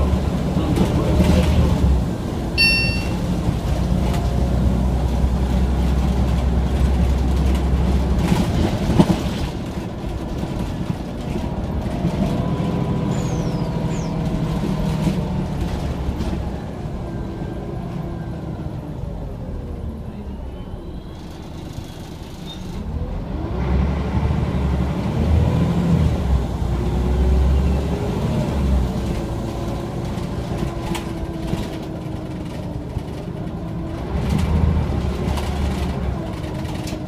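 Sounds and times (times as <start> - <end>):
bus engine drone: 0.0 - 37.0
short high beeping: 2.6 - 3.4.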